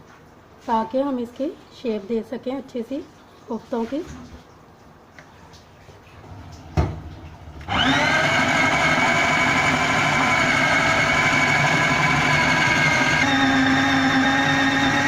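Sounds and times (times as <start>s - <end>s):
mixer grinder motor whining: 7.6s - 15.0s.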